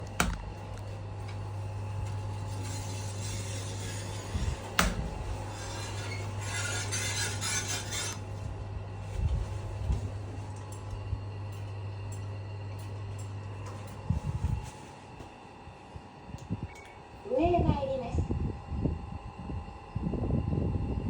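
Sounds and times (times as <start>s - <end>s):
low hum: 0.0s - 21.0s
scraping rub: 1.5s - 8.5s.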